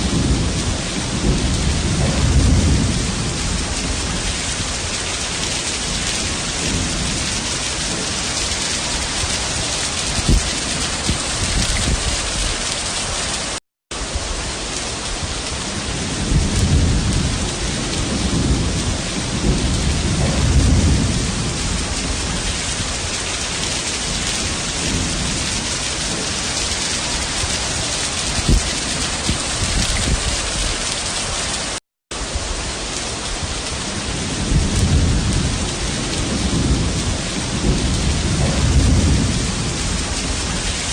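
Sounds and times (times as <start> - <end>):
rolling thunder: 0.0 - 31.4, 32.1 - 40.9
heavy rain pouring: 0.0 - 40.9.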